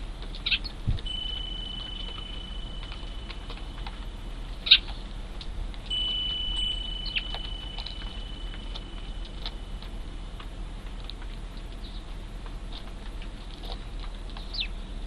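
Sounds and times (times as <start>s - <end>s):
sparrows chirping: 0.3s - 10.2s, 11.6s - 12.2s, 13.6s - 15.0s
thin steady high tone: 1.0s - 10.4s.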